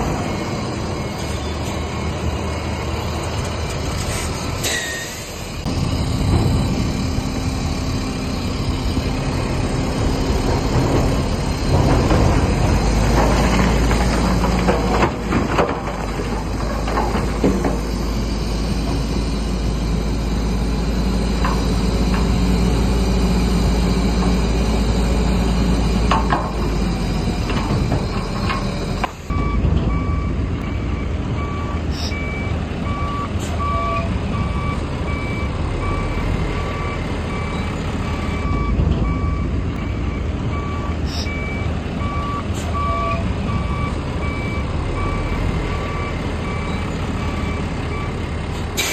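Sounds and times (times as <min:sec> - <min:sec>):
reversing alarm beeping: 0:00.0 - 0:03.5, 0:16.8 - 0:48.2
diesel machinery engine under load: 0:00.0 - 0:48.9
metal knocks and clanks: 0:06.1 - 0:07.2, 0:10.0 - 0:18.0.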